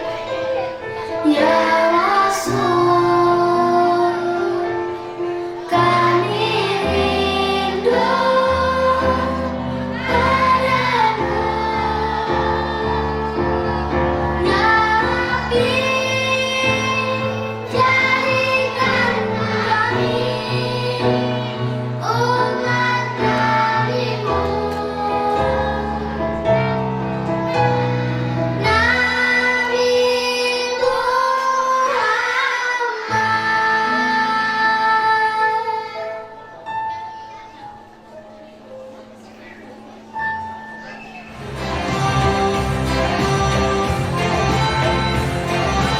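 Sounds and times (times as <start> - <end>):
children's choir singing: 0.0 - 45.9
instrumental accompaniment bass notes: 5.8 - 29.3, 41.3 - 45.9.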